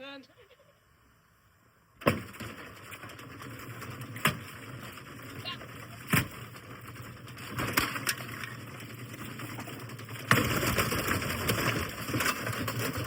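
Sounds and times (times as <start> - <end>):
sharp knocks: 2.0 - 3.1
crackling and crunching: 2.0 - 13.0.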